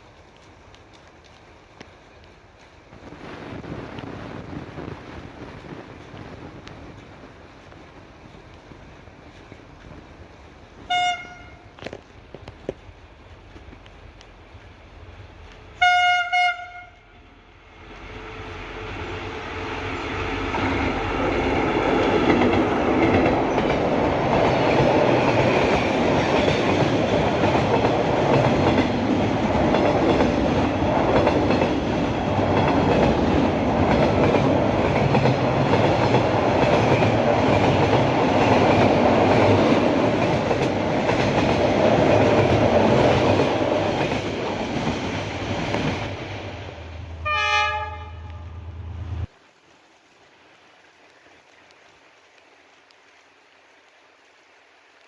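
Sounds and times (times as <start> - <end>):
train horn blast: 10.9 - 11.8, 15.8 - 17.3, 47.2 - 49.1
train wheels clattering on rails: 20.5 - 46.5.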